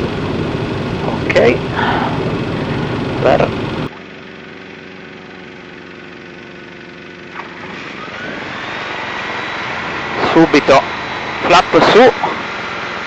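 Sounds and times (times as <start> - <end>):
airflow wind noise: 0.0 - 3.9
aircraft engine idling: 0.0 - 13.0
rising whine: 0.0 - 13.0.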